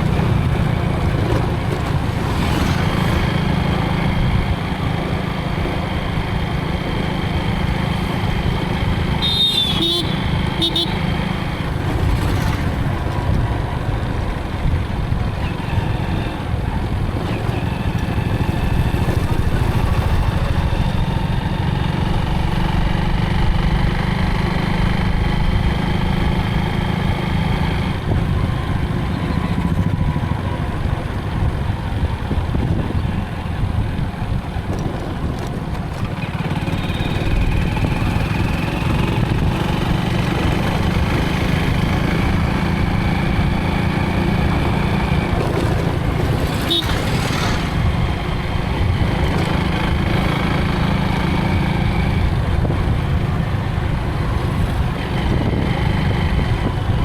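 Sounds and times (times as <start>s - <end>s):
motorcycle engine rumbling: 0.0s - 57.0s.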